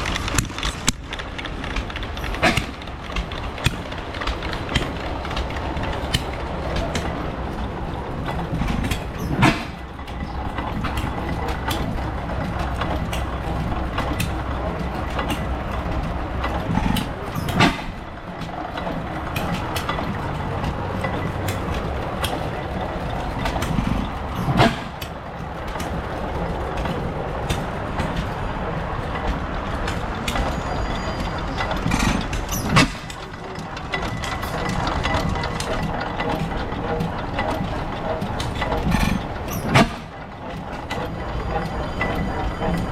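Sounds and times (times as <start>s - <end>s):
old engines running: 0.0s - 42.9s.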